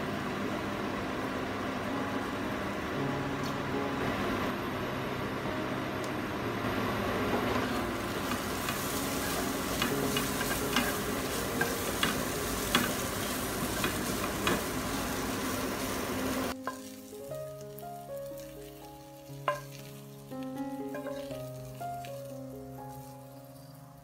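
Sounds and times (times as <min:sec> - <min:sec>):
food sizzling in hot oil: 0:06.8 - 0:24.0.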